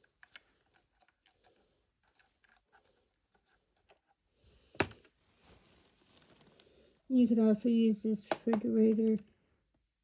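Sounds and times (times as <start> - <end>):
small plastic objects clicking: 0.0 - 4.1.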